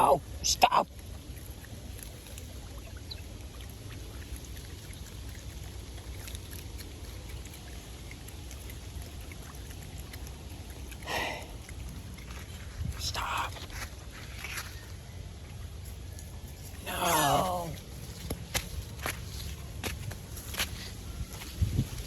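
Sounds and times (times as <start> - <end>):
trickling water: 0.0 - 22.0
faint drips: 0.2 - 22.0
light rain: 1.0 - 12.7.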